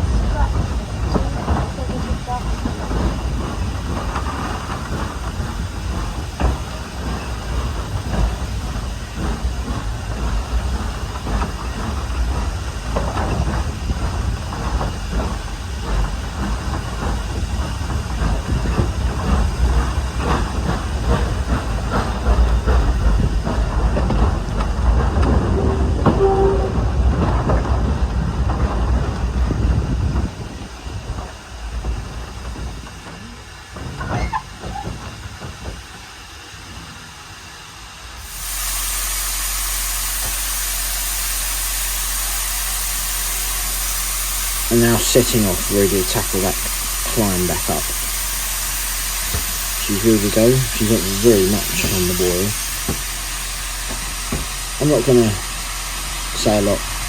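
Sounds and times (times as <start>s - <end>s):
train rumbling on rails: 0.0s - 57.0s
wheel clicks on rail joints: 0.1s - 36.0s.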